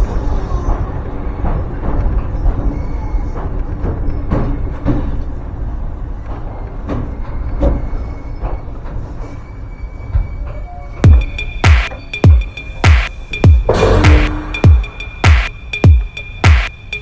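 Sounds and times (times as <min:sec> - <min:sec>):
electronic music with heavy bass: 0:11.0 - 0:17.0.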